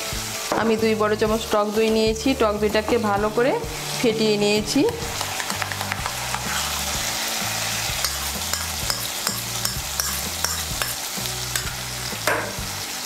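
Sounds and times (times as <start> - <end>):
paste sizzling in hot oil: 3.6 - 13.0
spatula scraping a pan: 5.3 - 11.9.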